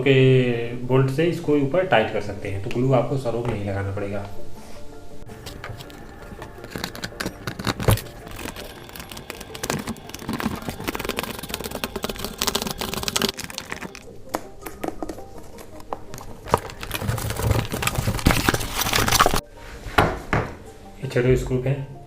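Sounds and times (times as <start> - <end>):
handling small plastic parts: 5.3 - 14.1, 15.4 - 19.4.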